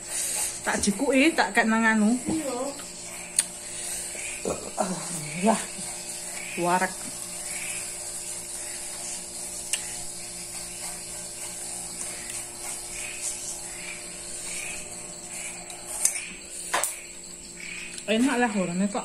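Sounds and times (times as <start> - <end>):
steady low hum: 0.0 - 19.0
person chewing food: 2.8 - 4.6, 8.6 - 17.0.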